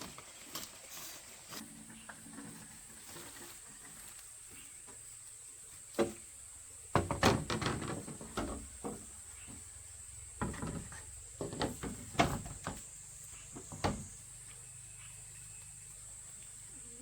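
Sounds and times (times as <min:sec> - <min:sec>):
hard knocks and clatter: 0:06.9 - 0:09.1, 0:10.4 - 0:12.9.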